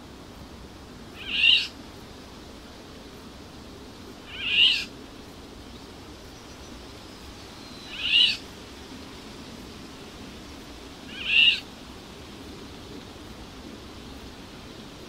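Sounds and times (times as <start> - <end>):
faint background hiss: 0.0 - 15.0
sharp bird calls: 1.2 - 1.7, 4.3 - 4.9, 7.7 - 8.4, 11.1 - 11.6.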